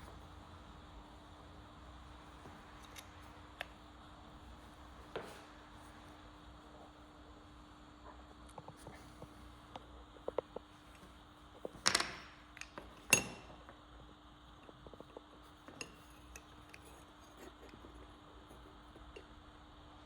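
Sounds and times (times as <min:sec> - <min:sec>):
small objects clicking on workbench: 0:11.7 - 0:13.6.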